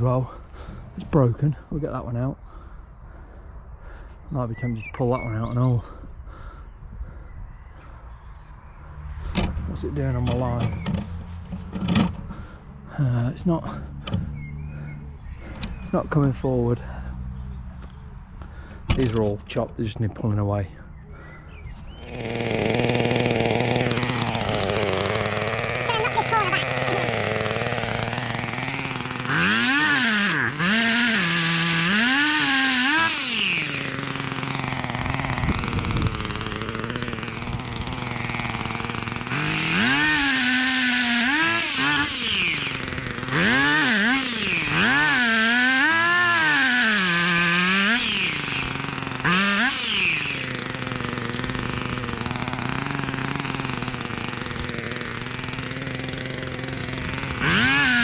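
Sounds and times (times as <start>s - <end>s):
engine revving: 22.0s - 58.0s.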